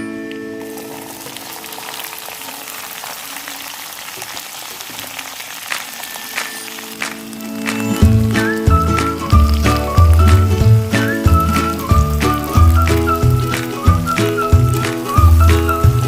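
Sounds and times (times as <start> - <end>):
background music: 0.0 - 3.0, 6.4 - 16.0
food sizzling in hot oil: 0.5 - 16.0.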